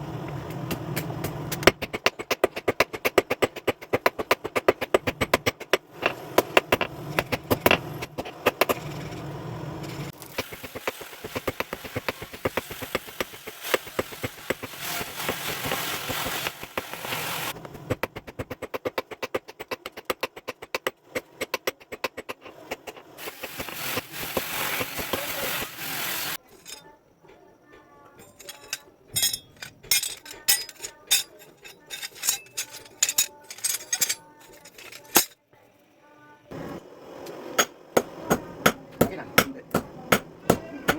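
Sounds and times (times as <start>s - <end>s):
steady background noise: 22.1s - 40.9s
hammer striking metal: 28.2s - 35.4s.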